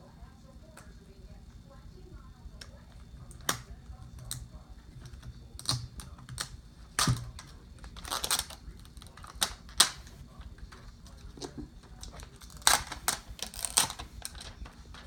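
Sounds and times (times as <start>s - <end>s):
plastic packaging clicks and knocks: 5.0s - 10.1s
plastic crinkle: 5.0s - 15.0s.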